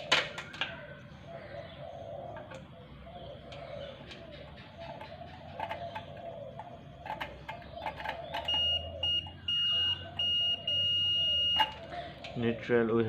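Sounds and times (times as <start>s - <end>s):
multimeter continuity beeps: 7.9s - 11.9s.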